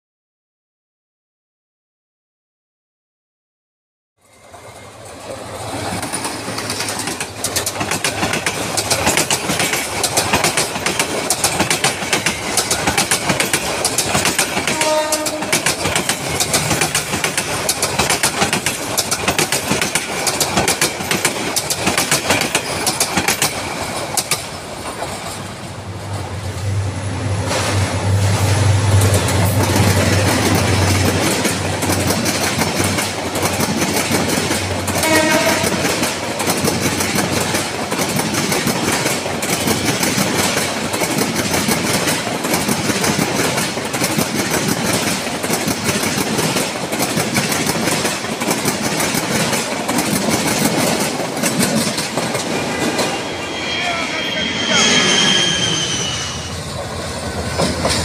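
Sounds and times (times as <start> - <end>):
low rumble of passing train: 4.2 - 58.0
train wheels clattering over joints: 5.7 - 25.8, 29.0 - 53.8
train horn note: 14.6 - 15.7, 34.8 - 36.1.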